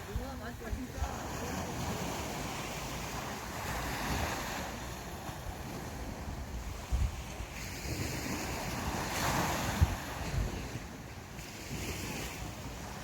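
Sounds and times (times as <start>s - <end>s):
sea waves washing onto beach: 0.0s - 13.0s
wind buffeting microphone: 0.0s - 13.0s.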